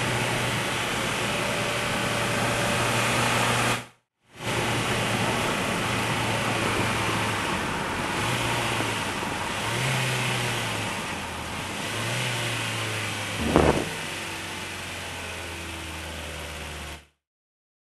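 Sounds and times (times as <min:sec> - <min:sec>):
car engine from inside cabin: 0:04.4 - 0:17.0
short loud knock: 0:13.4 - 0:14.0.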